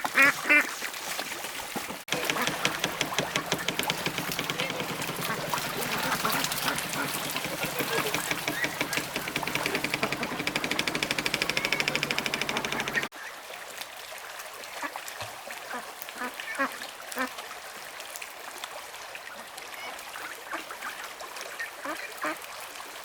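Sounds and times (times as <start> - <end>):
fast run of pulses: 2.1 - 13.1.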